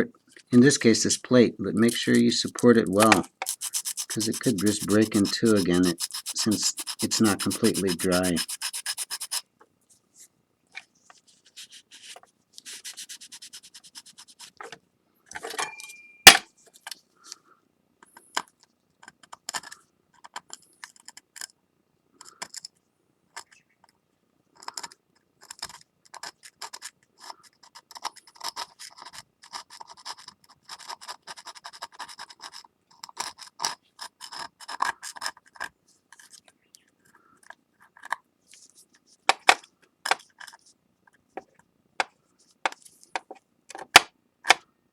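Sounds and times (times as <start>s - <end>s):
sandpaper rubbing on ceramic plate: 3.4s - 9.4s, 11.3s - 14.6s.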